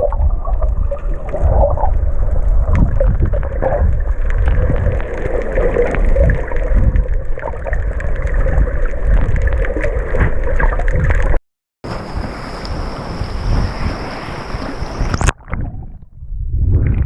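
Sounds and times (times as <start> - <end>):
crackling clicks: 0.0 - 11.4
muffled underwater rumble: 0.0 - 11.4, 12.0 - 17.0.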